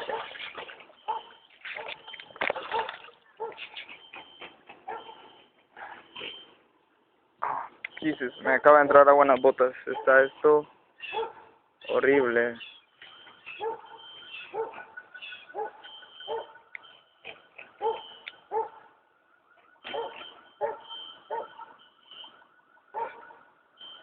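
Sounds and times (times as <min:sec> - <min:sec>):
dog barking: 0:00.0 - 0:00.4, 0:01.1 - 0:02.0, 0:02.6 - 0:03.7, 0:04.8 - 0:06.0, 0:09.8 - 0:10.4, 0:11.0 - 0:11.6, 0:13.5 - 0:16.6, 0:17.8 - 0:19.0, 0:19.8 - 0:21.8, 0:22.9 - 0:23.4.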